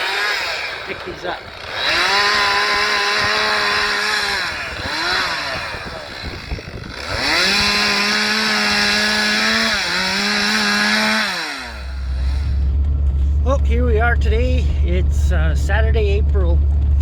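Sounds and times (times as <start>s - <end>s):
chainsaw revving: 0.0s - 12.8s.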